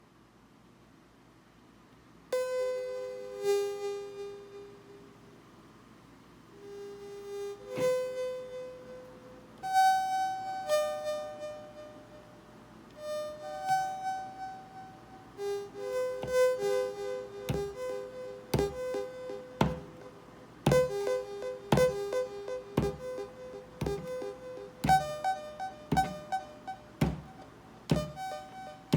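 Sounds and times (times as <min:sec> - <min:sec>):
buzzy synthesizer notes: 0:16.2 - 0:20.1, 0:20.7 - 0:28.9.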